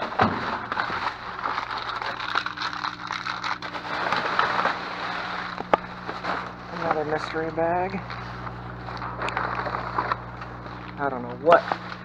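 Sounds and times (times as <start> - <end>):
plastic packaging crinkling: 0.0 - 12.0
steady low hum: 0.0 - 12.0.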